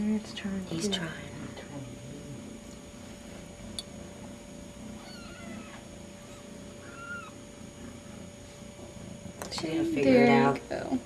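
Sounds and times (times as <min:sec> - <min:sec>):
kittens mewing: 0:04.9 - 0:08.4.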